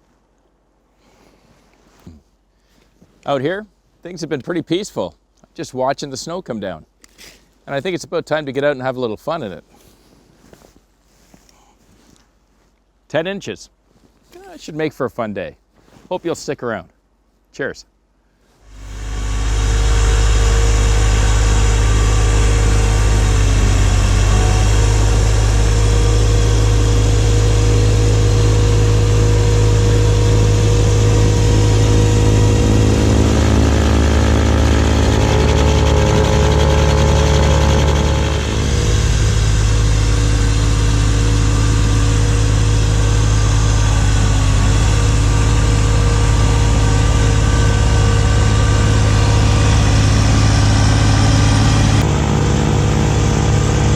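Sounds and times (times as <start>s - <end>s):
tractor diesel engine running: 18.7s - 53.9s.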